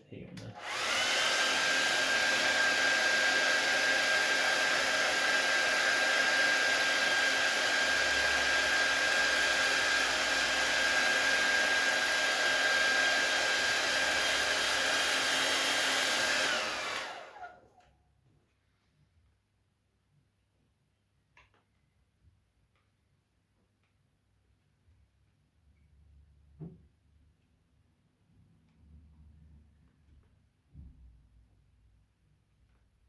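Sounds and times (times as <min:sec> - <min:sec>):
hot-air blower hissing and whining: 0:00.4 - 0:17.7.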